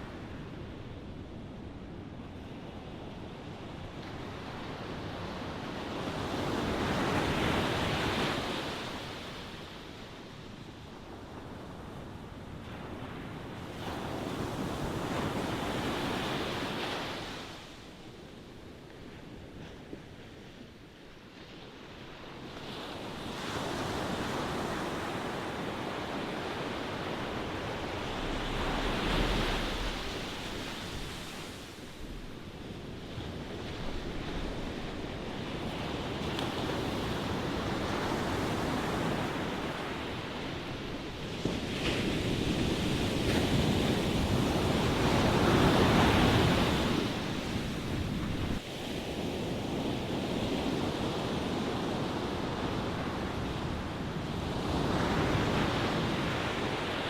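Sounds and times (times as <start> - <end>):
ocean waves breaking: 22.9 - 50.1.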